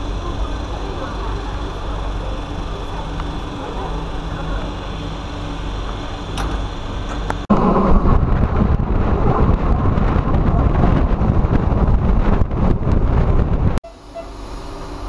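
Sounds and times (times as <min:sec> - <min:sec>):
electric train running: 0:00.0 - 0:07.5, 0:11.1 - 0:15.0
wind buffeting microphone: 0:00.0 - 0:13.9
steady hum with level tones: 0:00.0 - 0:15.0.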